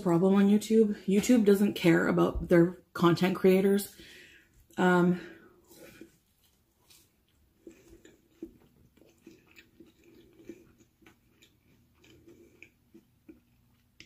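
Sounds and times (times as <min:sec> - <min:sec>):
person chewing food: 0:05.6 - 0:14.0.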